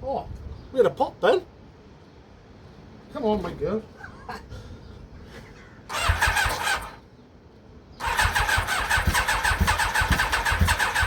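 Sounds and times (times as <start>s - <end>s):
motorcycle starter cranking: 5.9s - 7.0s, 8.0s - 11.0s.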